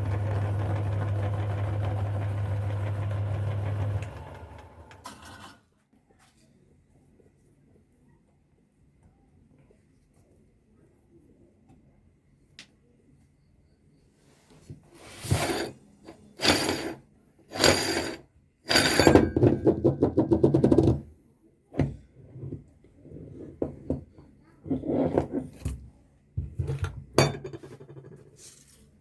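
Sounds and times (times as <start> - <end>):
meat grinder crunching candy: 0.0 - 5.3.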